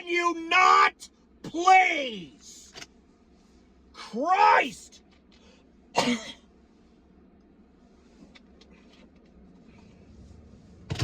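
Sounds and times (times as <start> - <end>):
man ranting angrily: 0.0 - 2.5, 4.0 - 5.0.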